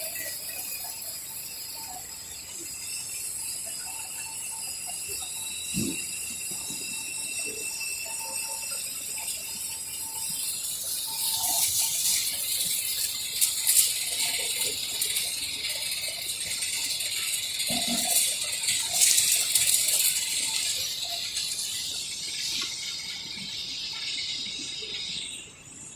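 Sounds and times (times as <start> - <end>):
sharp metal clinks: 0.0 - 25.6
machine high whine: 0.0 - 25.9
metallic rattling clatter: 10.3 - 24.4.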